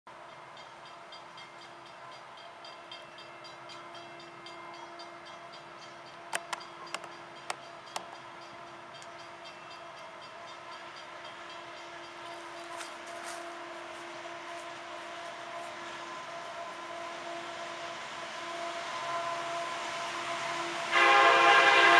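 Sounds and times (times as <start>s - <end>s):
distant freight train hum: 0.1s - 21.9s
light regular ticking: 5.8s - 9.6s
sharp clicks: 6.3s - 8.1s.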